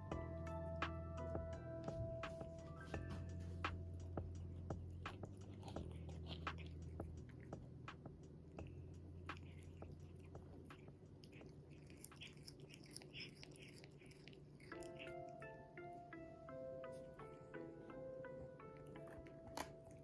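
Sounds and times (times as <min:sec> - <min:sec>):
chewing and crunching: 0:02.7 - 0:15.6, 0:18.3 - 0:20.0.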